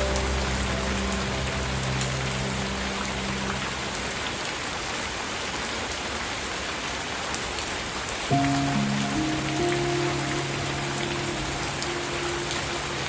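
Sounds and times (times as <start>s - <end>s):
soft held low music notes: 0.0s - 4.5s, 8.3s - 13.0s
rain drops: 0.0s - 13.0s
rain hiss: 0.0s - 13.0s.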